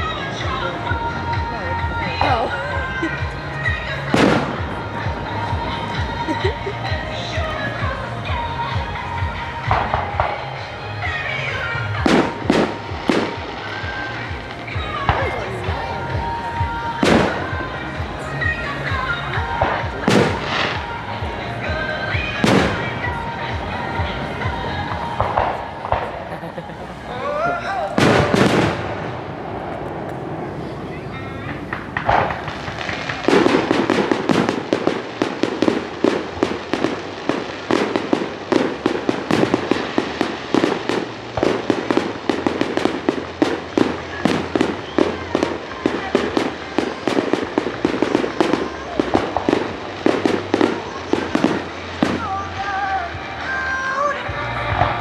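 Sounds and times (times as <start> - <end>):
firework crackle: 0.0 - 55.0
music playing: 0.0 - 55.0
firework bang: 19.5 - 20.9, 22.4 - 23.2, 28.0 - 30.4, 31.5 - 52.4.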